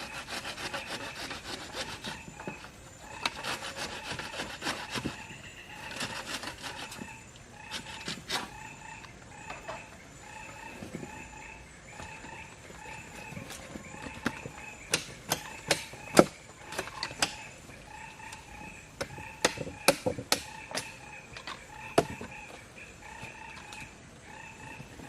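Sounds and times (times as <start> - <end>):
repeated animal calls: 0.0 - 25.0
sharp knocks and clicks: 14.0 - 17.5, 19.0 - 22.4.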